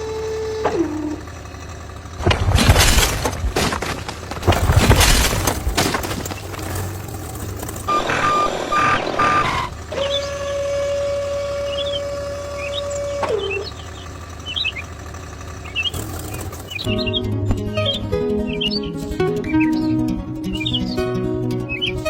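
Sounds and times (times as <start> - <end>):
small motor humming: 0.0 - 22.0
loose material rattling crash: 0.6 - 7.9
reversing beeps: 7.9 - 9.8.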